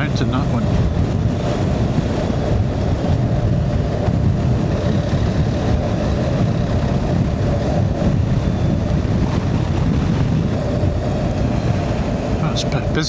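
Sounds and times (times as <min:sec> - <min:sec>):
motorcycle engine running: 0:00.0 - 0:13.0
wind on microphone: 0:00.0 - 0:13.0.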